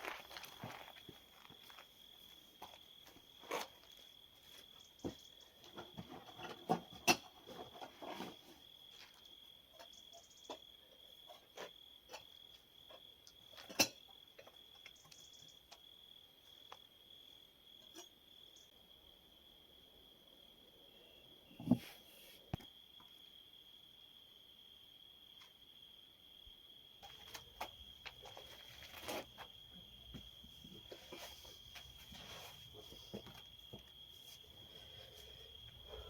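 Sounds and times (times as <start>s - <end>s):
high-pitched insect trill: 9.8s - 10.7s.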